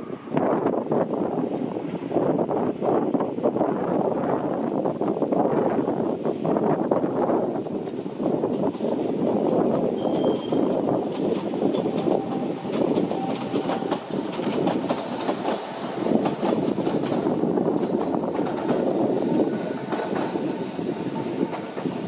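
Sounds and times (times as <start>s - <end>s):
train wheels clicking over rail joints: 8.4s - 20.6s.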